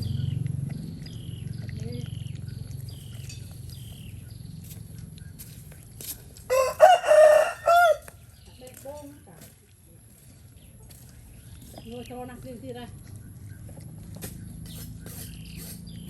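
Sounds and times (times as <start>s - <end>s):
small birds chirping: 0.0s - 6.6s, 7.2s - 16.0s
rooster crowing: 6.5s - 8.2s.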